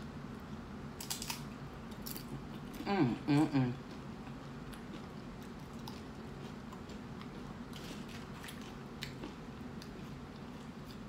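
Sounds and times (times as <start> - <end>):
steady low hum: 0.0 - 11.0
crunching tortilla chips: 1.0 - 2.4.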